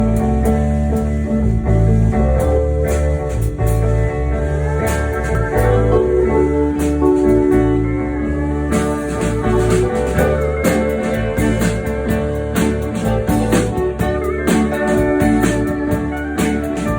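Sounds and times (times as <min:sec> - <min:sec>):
live band playing: 0:00.0 - 0:16.9
drum and cymbal hits: 0:08.8 - 0:16.9.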